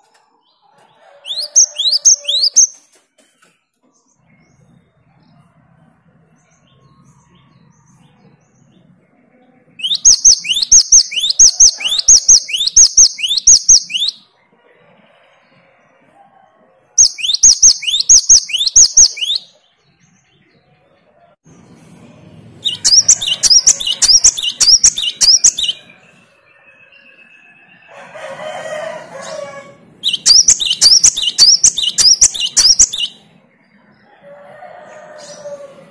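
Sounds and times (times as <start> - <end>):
bird whistling rising notes: 17.0 - 19.5, 22.6 - 27.8, 30.0 - 33.2.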